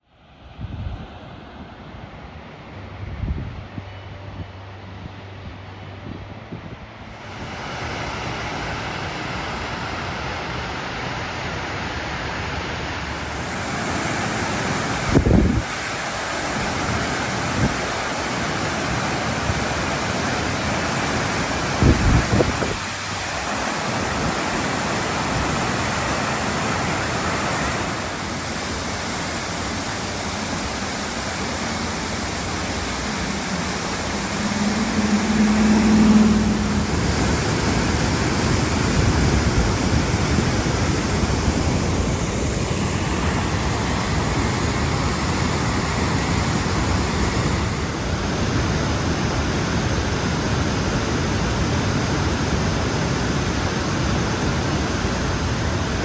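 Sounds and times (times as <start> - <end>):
low hum: 0.1 - 24.2, 28.0 - 52.6
waterfall rushing: 7.2 - 56.0
wind thumps on microphone: 15.1 - 15.7, 21.8 - 22.9.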